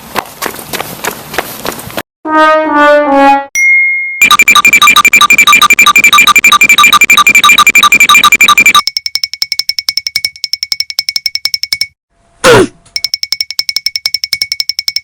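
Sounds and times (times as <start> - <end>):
steady high synth tone: 4.2 - 8.8
synthesizer pulsing buzz: 4.2 - 8.8.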